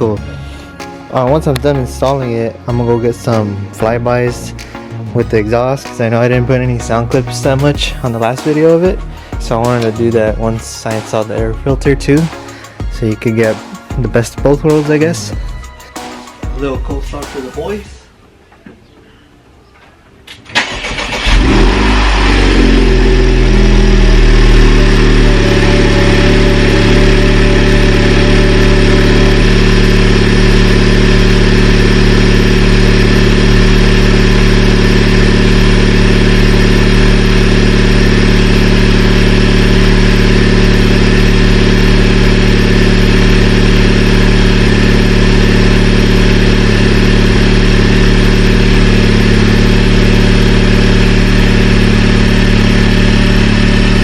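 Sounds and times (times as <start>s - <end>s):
loud car engine idling: 0.0s - 0.8s, 6.3s - 15.9s, 20.6s - 54.0s
car engine cranking: 20.3s - 53.9s.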